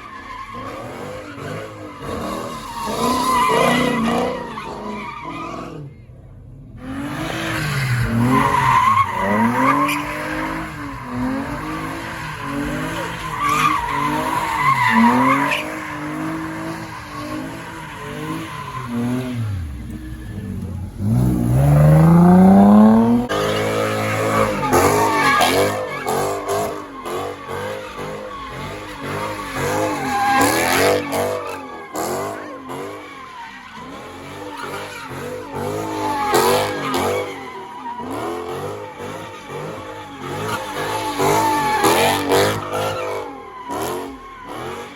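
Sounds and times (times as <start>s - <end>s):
tire screeching: 0.0s - 44.9s
car engine revving hard: 6.8s - 33.1s.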